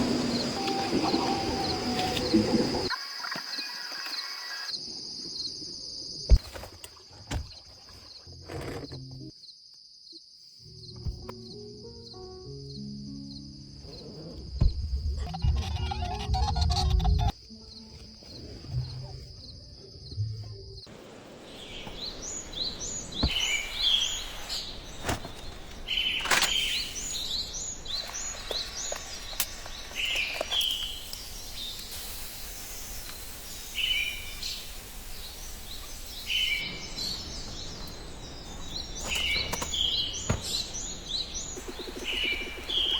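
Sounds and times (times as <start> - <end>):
small birds chirping: 15.7 - 42.9.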